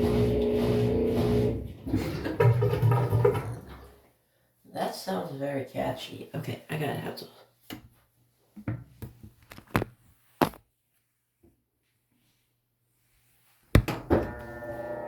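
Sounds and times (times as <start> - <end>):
sharp thump: 13.8 - 14.2.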